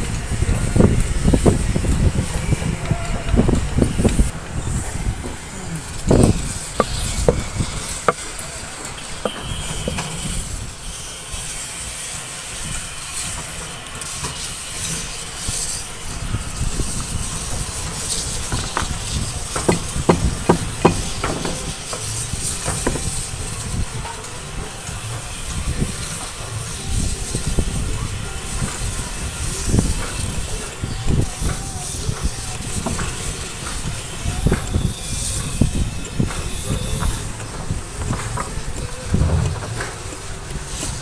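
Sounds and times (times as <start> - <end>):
sharp knocks and taps: 19.6 - 22.1.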